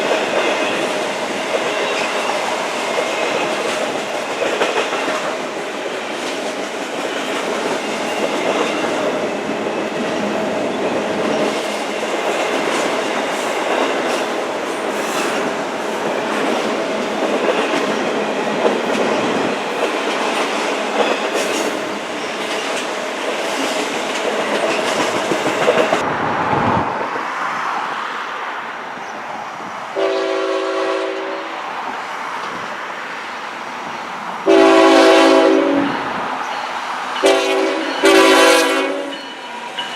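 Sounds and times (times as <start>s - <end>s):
train wheels clacking over rail joints: 0.0s - 26.0s
multi-chime air horn blasts: 37.2s - 39.4s.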